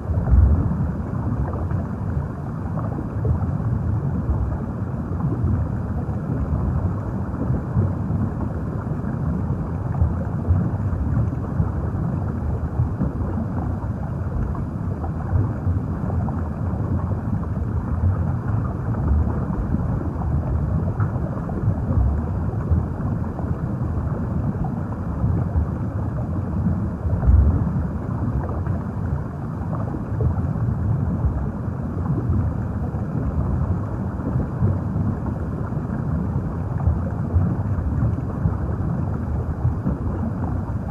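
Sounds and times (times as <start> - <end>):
underwater rumble of moving water: 0.0 - 40.9.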